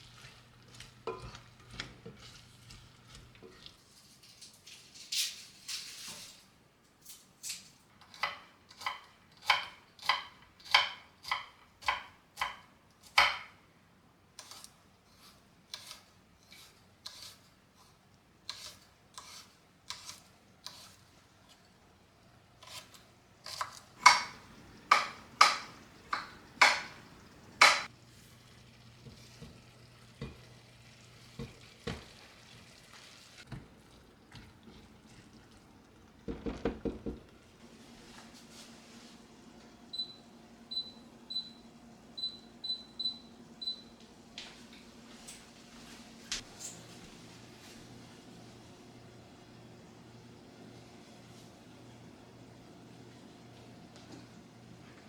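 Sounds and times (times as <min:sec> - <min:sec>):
utensil stirring in a bowl: 0:00.0 - 0:04.9.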